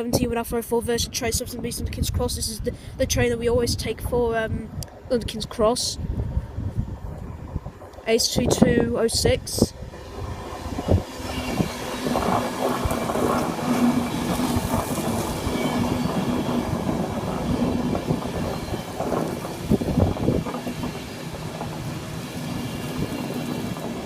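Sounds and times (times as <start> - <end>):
train wheels clicking over rail joints: 7.2 - 24.0.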